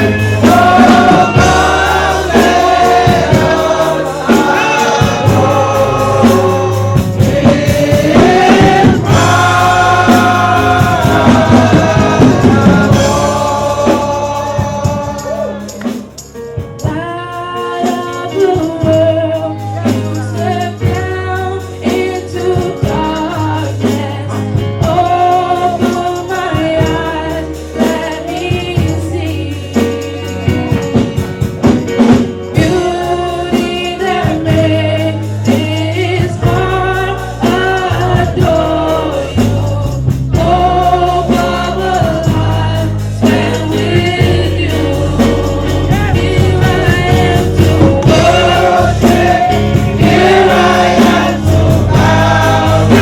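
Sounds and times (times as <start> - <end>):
bass line: 0.0 - 17.6, 32.6 - 53.0
voices singing together: 0.0 - 31.0, 32.4 - 53.0
tambourine: 0.0 - 53.0.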